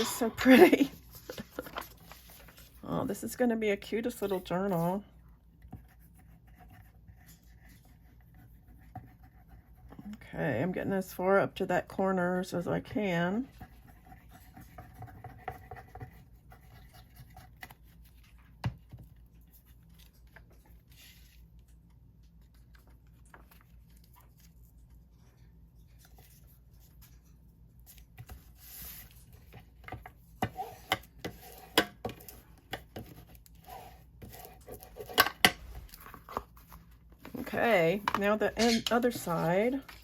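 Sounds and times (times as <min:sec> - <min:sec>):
paper rustling and scratching: 0:00.4 - 0:03.2, 0:04.0 - 0:05.0, 0:13.5 - 0:40.0.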